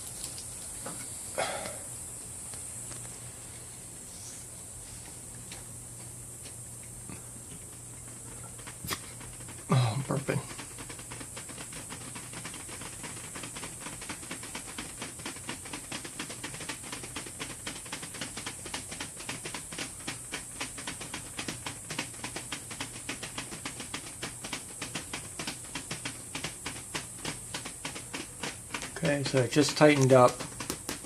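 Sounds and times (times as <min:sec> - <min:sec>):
plastic sheet ticking: 0:07.6 - 0:31.0
heater hissing: 0:23.9 - 0:31.0.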